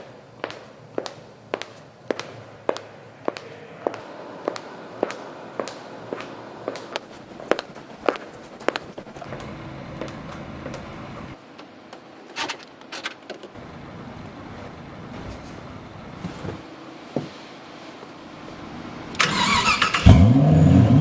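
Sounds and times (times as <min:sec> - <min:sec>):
car engine rumble: 0:02.0 - 0:11.4, 0:13.6 - 0:17.2.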